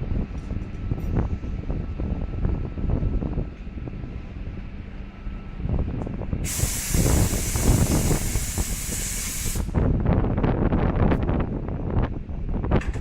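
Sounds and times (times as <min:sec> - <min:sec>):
low train rumble: 0:00.0 - 0:13.0
train air hiss: 0:06.4 - 0:09.9
train clanks: 0:12.7 - 0:13.0.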